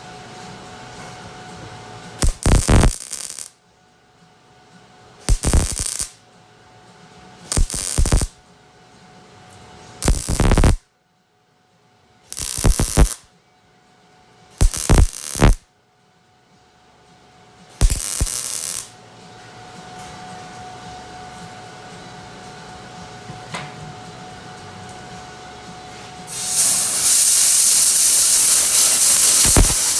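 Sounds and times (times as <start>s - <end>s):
welding arc bursts: 2.2s - 3.5s, 5.3s - 6.2s, 7.5s - 8.3s, 10.0s - 10.8s, 12.3s - 13.2s, 14.6s - 15.6s, 17.8s - 18.9s, 26.3s - 29.9s.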